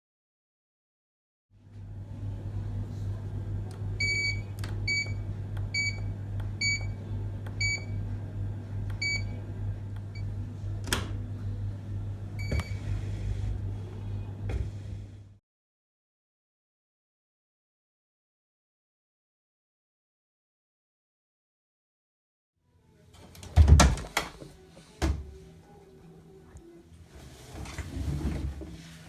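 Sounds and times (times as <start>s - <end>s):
steady low hum: 1.6s - 15.4s
appliance beeping: 3.6s - 8.2s, 8.8s - 11.2s, 12.2s - 13.4s.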